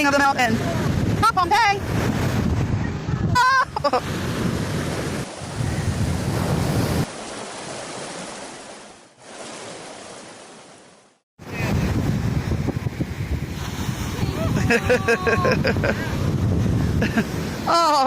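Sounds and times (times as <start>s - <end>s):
wind buffeting microphone: 0.0s - 7.1s, 11.4s - 17.7s
ocean surf: 0.0s - 18.0s.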